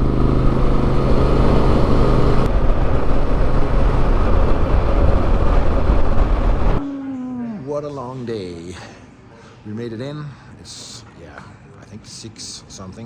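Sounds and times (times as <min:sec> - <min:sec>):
motorcycle engine hum: 0:00.0 - 0:06.8
wind and road noise: 0:00.0 - 0:06.8.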